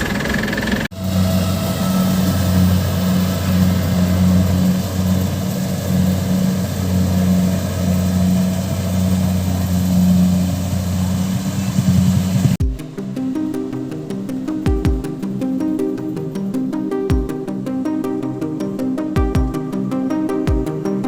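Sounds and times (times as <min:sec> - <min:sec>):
combine harvester engine droning: 0:00.0 - 0:12.6.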